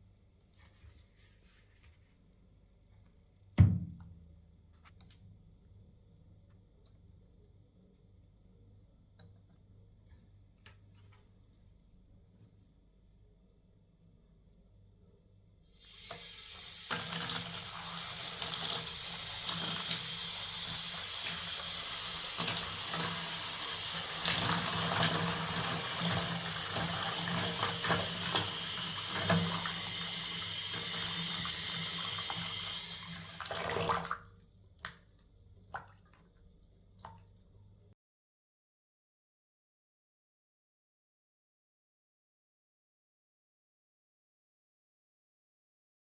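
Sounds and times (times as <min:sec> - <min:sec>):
tap running into sink: 0:22.3 - 0:34.2.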